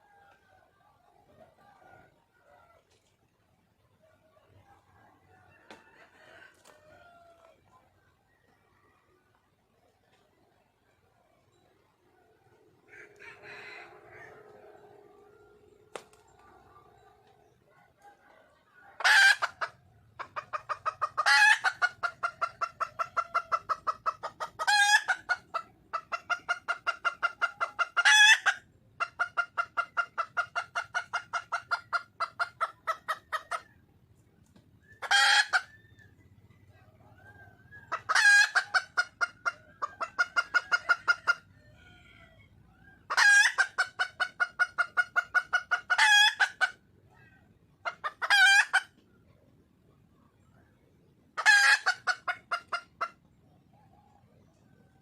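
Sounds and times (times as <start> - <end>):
hen squawking and clucking: 18.8 - 33.8, 34.8 - 36.0, 37.2 - 49.0, 51.4 - 53.3.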